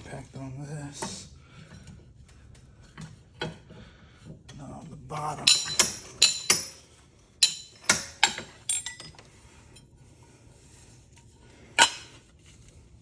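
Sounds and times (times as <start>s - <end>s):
metallic clinks of fan parts: 5.1s - 6.8s, 7.4s - 9.8s.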